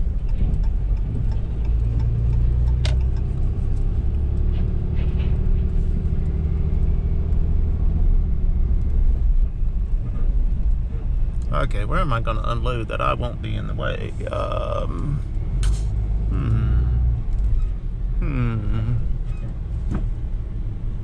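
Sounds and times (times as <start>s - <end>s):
vehicle engine droning: 0.0s - 21.0s
sharp click: 15.6s - 15.9s.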